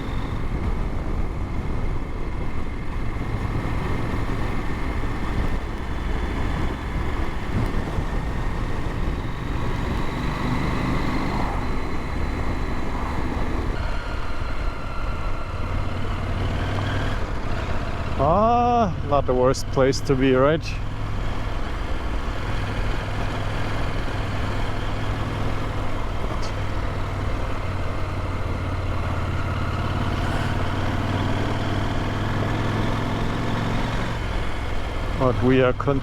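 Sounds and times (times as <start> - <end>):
wind noise: 0.0 - 18.2
motorcycle engine running: 0.0 - 36.0.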